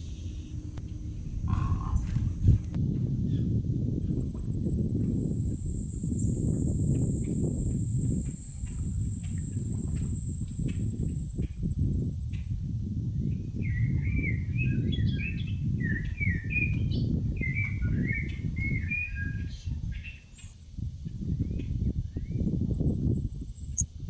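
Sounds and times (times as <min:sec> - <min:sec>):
songbird warbling and chirping: 0:00.0 - 0:24.0
steady low rumble: 0:00.0 - 0:24.0
thin high tone: 0:03.1 - 0:12.8, 0:19.8 - 0:24.0.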